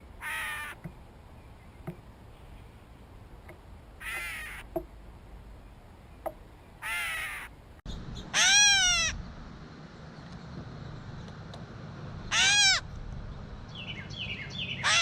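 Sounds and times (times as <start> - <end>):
bird mewing call: 0.2 - 0.8, 4.0 - 4.7, 8.2 - 9.2, 12.3 - 12.8, 14.2 - 15.0.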